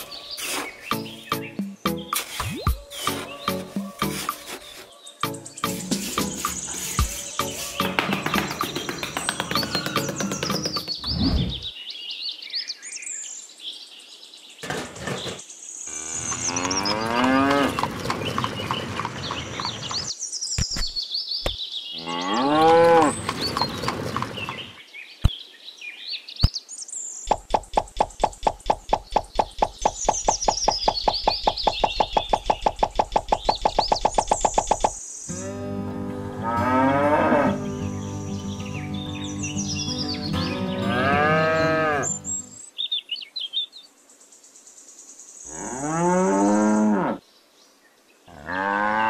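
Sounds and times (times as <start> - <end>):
birds chirping: 0.0 - 35.5, 36.5 - 48.3
cattle mooing: 16.2 - 17.8, 35.3 - 37.6, 40.9 - 42.1
fast even pulsing sound: 27.3 - 35.0.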